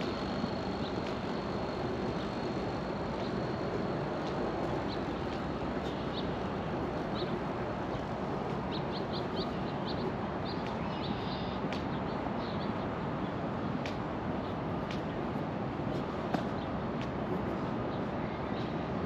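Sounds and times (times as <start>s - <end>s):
steady background rumble: 0.0s - 19.0s
small birds chirping: 4.6s - 13.4s.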